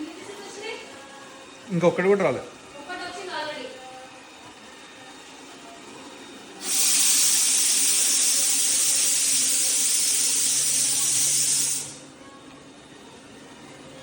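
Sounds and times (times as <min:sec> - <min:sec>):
loud steady hiss: 0:06.6 - 0:12.0.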